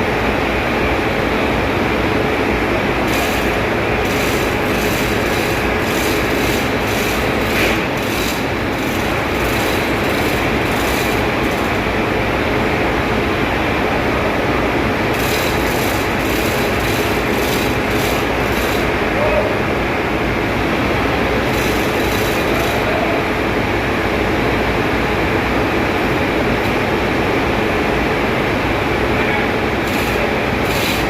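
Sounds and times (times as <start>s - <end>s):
engine-room machinery noise: 0.0s - 31.0s
rapid hissing pulse: 2.8s - 11.9s.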